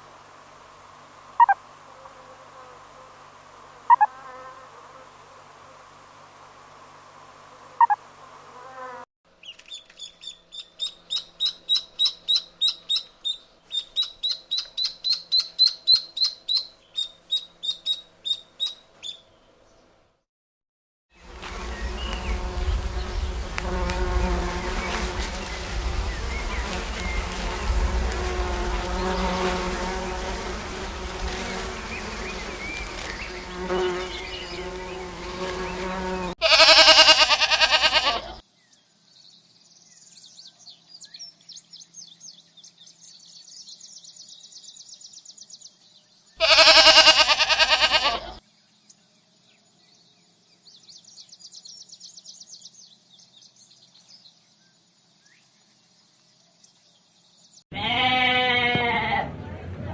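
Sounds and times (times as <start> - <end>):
flying insect buzzing: 21.2 - 36.4
loud wavering bleats: 36.4 - 38.4, 46.4 - 48.4, 57.7 - 59.4.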